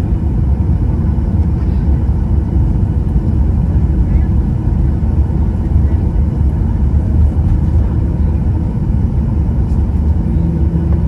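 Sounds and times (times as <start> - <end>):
jet cabin rumble: 0.0 - 11.0.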